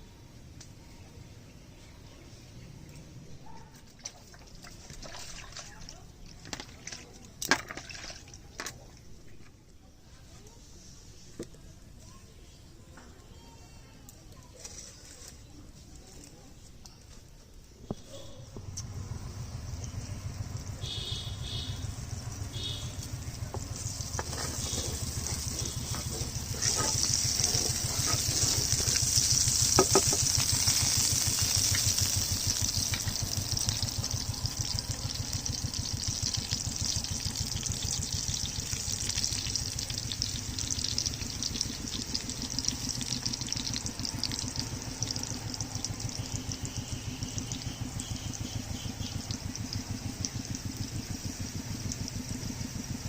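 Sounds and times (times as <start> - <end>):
fritters sizzling in hot oil: 18.6 - 53.0.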